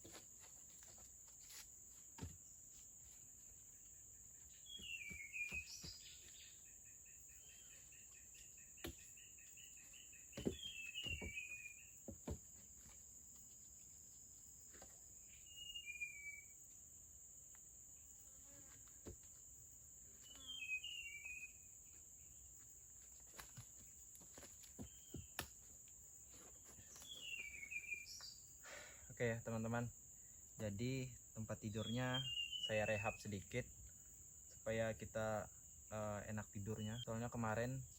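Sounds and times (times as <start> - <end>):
forest insects droning: 0.0 - 37.9
bird calling: 4.4 - 12.0, 20.2 - 21.7, 26.8 - 28.5, 31.7 - 33.2.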